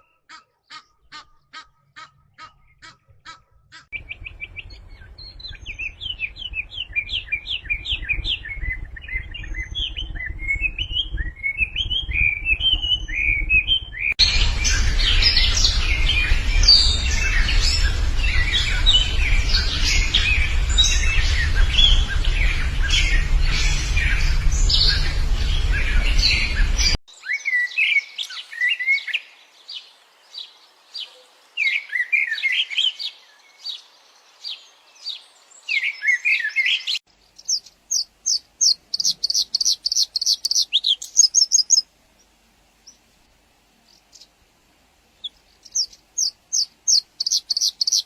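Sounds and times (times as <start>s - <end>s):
songbirds singing: 0.0s - 48.0s
low rumble: 4.0s - 27.0s.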